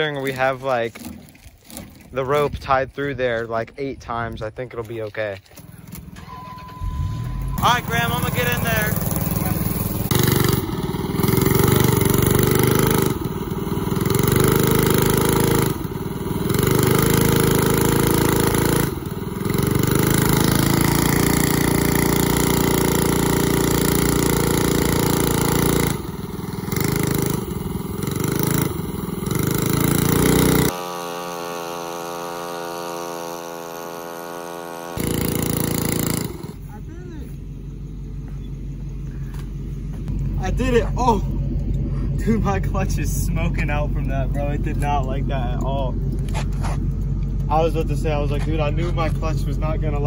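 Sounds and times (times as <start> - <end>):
small engine running under load: 5.5 - 50.0
quieter steady sound: 5.8 - 10.9.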